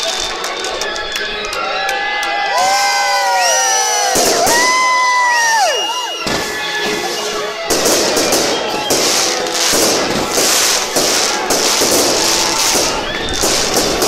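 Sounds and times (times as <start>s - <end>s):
crackling firework bursts: 2.7s - 14.0s
whistling rockets: 3.9s - 14.0s.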